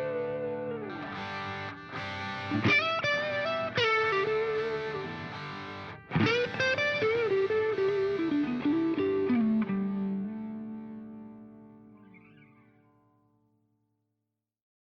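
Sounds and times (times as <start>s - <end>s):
distorted electric guitar melody: 0.0s - 13.2s.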